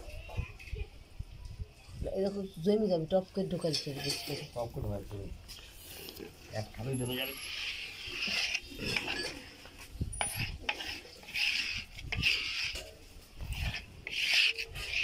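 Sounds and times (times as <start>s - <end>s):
scraper stirring thick paste in bowl: 6.7s - 9.5s, 10.2s - 15.0s.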